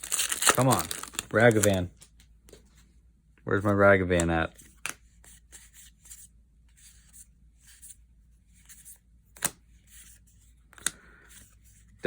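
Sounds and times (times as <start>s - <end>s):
trading cards rustling: 0.0s - 2.7s.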